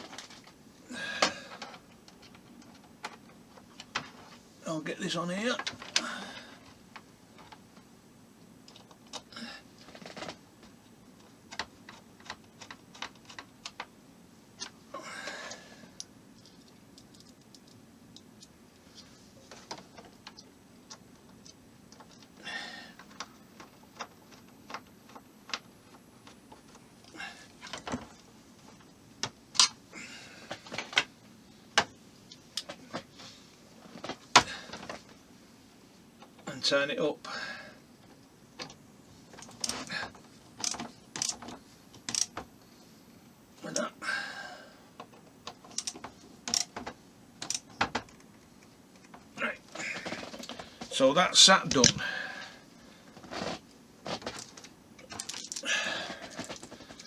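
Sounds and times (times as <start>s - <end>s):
small plastic parts clicking: 16.0s - 18.6s, 40.6s - 42.4s, 45.0s - 49.2s, 54.2s - 55.6s.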